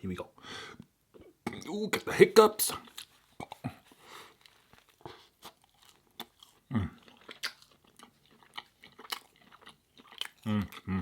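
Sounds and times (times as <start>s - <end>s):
person chewing: 2.8s - 11.0s
wet mouth clicks and smacks: 7.2s - 7.7s.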